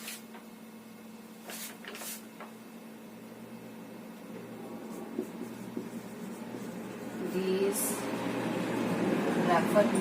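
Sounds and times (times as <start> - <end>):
low electrical hum: 0.0 - 10.0
scratchy writing strokes: 4.8 - 7.7.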